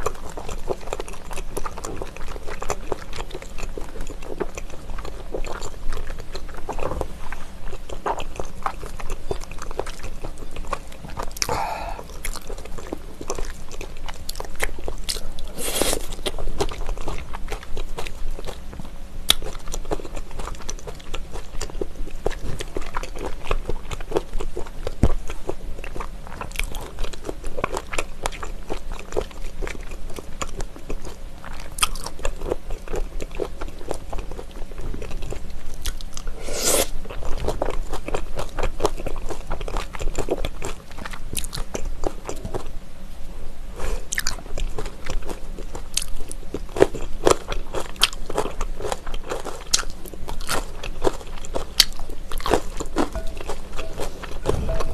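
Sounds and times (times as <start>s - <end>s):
wet crunchy chewing: 0.0s - 42.7s, 43.8s - 54.9s
chopsticks in glass bowl: 53.0s - 54.9s.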